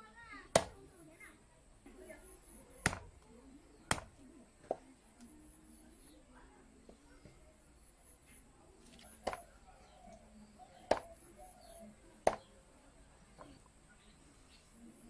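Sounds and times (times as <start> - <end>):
knife chopping on cutting board: 0.6 - 0.8, 2.8 - 3.1, 3.9 - 4.1, 9.2 - 9.4, 10.9 - 11.1, 12.3 - 12.5.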